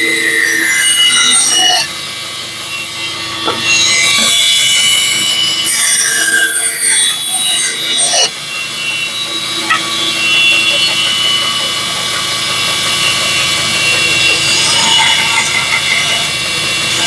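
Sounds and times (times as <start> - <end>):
bandsaw cutting wood: 9.3 - 17.0.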